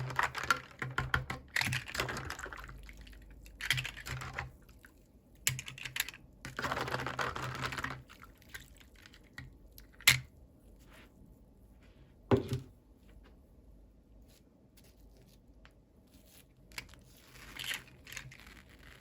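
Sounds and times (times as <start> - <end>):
plastic pieces and packaging rustling: 0.0 - 4.5, 5.5 - 9.5, 16.7 - 19.0.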